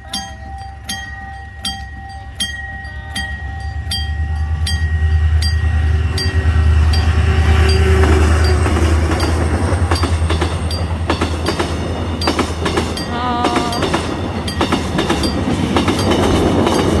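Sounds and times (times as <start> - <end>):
low engine drone: 0.0 - 12.2
train wheels clicking on rail joints: 0.0 - 17.0.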